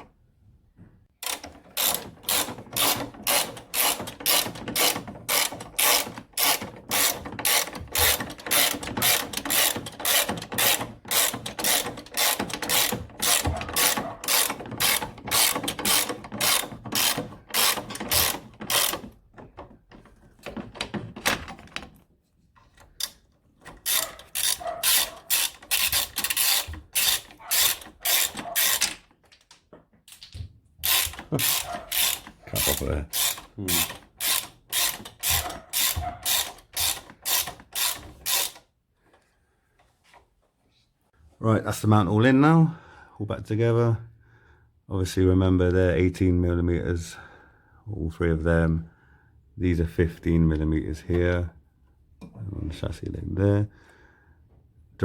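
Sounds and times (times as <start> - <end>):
socket ratchet clicking: 1.2 - 19.2, 23.0 - 29.0, 30.8 - 38.6.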